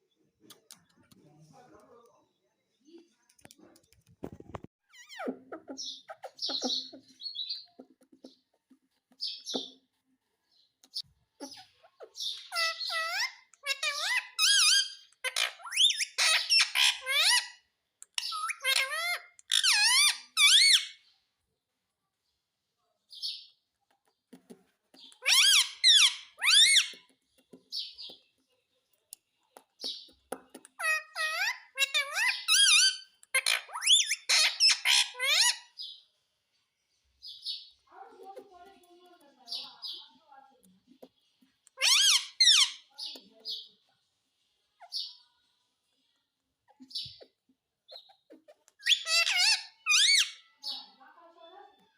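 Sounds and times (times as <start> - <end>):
parrot chirps and squawks: 4.8 - 8.4, 10.9 - 21.1, 25.0 - 27.1, 29.8 - 36.0, 41.0 - 43.8, 44.8 - 45.4, 46.6 - 51.0.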